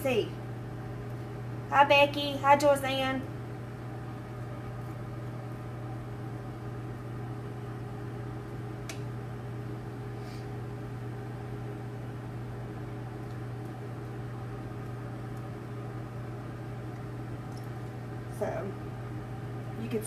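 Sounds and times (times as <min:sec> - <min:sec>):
microwave oven humming: 0:00.0 - 0:20.0.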